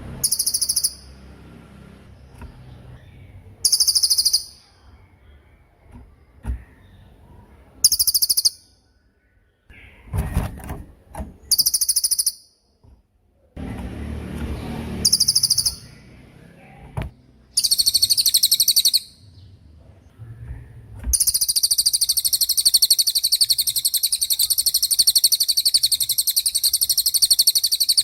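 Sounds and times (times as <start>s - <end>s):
bird singing high trills: 0.2s - 1.3s, 2.5s - 5.7s, 7.8s - 10.1s, 11.4s - 12.8s, 15.0s - 16.3s, 17.5s - 19.5s, 20.2s - 28.0s
dull background noise: 12.8s - 28.0s.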